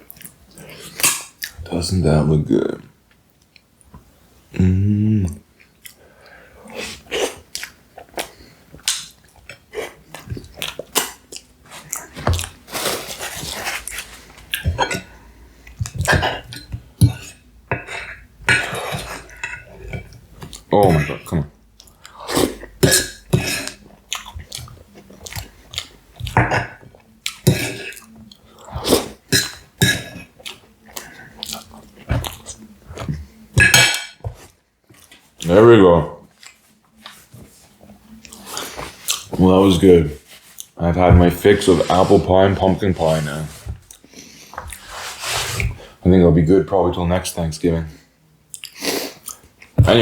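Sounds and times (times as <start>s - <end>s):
person chewing soft food: 5.3s - 20.7s, 21.7s - 29.3s, 30.0s - 33.5s, 36.3s - 39.3s, 40.4s - 40.8s, 43.8s - 44.9s, 48.5s - 49.8s
mouth clicks and smacks: 48.5s - 49.7s.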